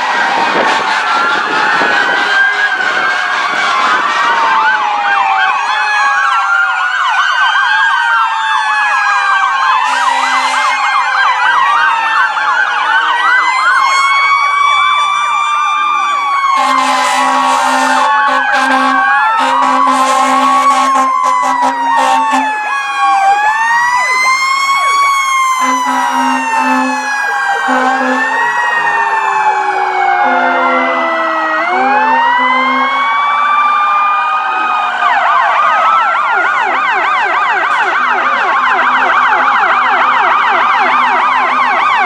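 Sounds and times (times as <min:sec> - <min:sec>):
fire engine sirens wailing: 0:00.0 - 0:42.0
deep horn blasts: 0:09.9 - 0:10.9, 0:16.5 - 0:23.3, 0:25.6 - 0:29.1, 0:30.1 - 0:33.1.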